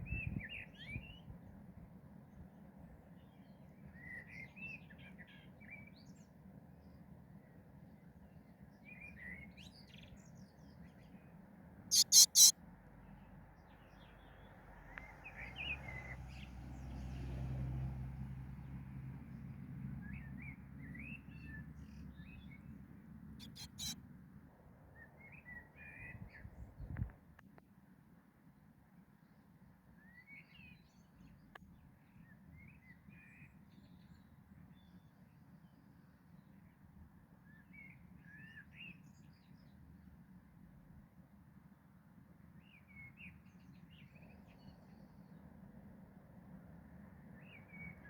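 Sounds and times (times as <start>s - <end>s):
small birds chirping: 11.9s - 12.5s, 23.4s - 24.0s.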